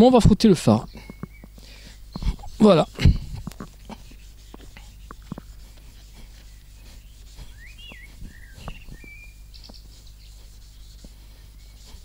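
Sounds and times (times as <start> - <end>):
songbird singing whistled notes: 0.8 - 2.4, 6.3 - 12.0
sponge scrubbing plastic: 2.1 - 12.0.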